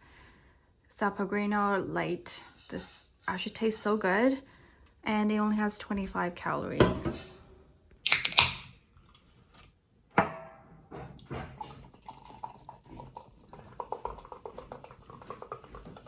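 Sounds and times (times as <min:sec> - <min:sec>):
can cracked open with hiss: 0:08.1 - 0:08.6
liquid and dish sounds: 0:08.1 - 0:16.0.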